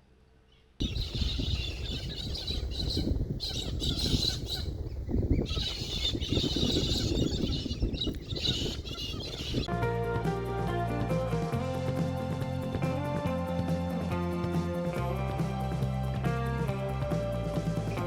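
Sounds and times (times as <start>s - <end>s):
constant low rumbling: 0.0s - 18.0s
birds chattering and squawking: 0.5s - 9.7s.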